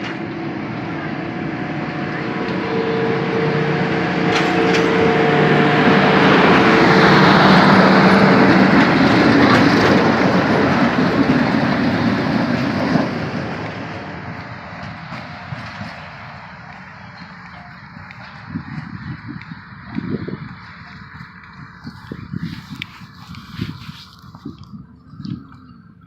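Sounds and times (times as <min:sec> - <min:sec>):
steady tones: 0:00.0 - 0:15.1
train passing: 0:00.0 - 0:25.0.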